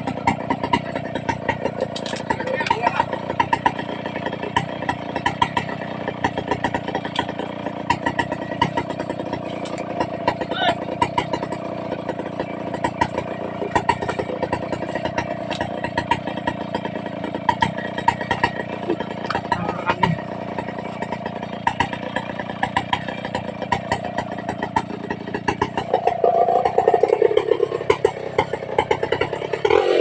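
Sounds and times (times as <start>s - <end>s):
chainsaw engine idling: 0.0s - 30.0s
light ticking and clatter: 0.1s - 10.2s.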